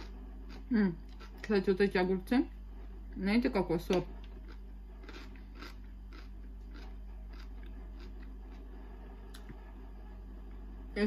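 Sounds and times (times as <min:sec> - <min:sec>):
chewing crisp cucumber: 0:00.0 - 0:01.5, 0:04.0 - 0:08.7.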